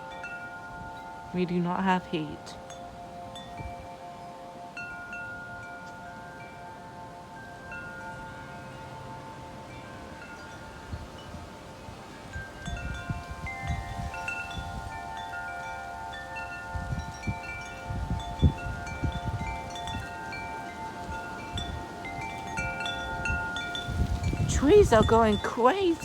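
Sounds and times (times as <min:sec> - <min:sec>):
wind chimes ringing: 0:00.0 - 0:26.0
wind buffeting microphone: 0:06.4 - 0:26.0.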